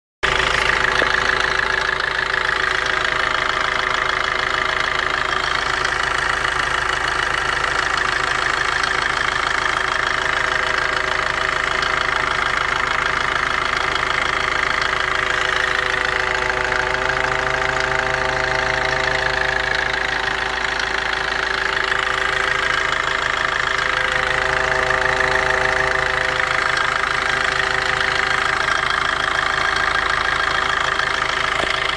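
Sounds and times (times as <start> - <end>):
diesel engine idling: 0.2 - 31.9.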